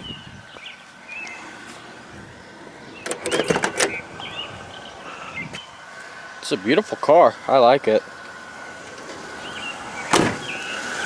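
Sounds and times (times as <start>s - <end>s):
car door latch clicks: 3.0s - 4.0s, 10.1s - 10.5s.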